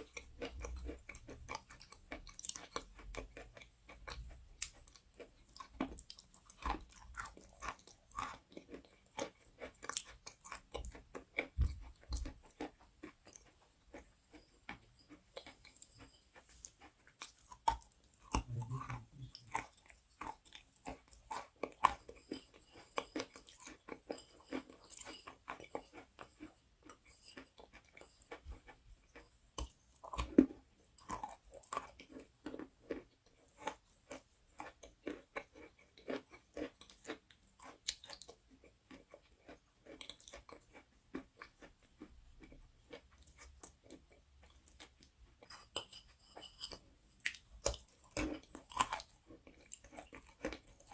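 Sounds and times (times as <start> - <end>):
chewing crunchy food: 0.0 - 50.9.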